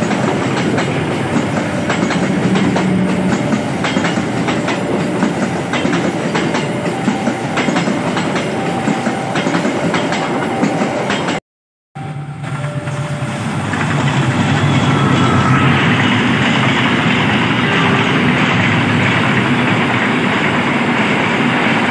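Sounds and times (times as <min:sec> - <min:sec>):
train wheels clicking over rail joints: 0:00.0 - 0:11.4.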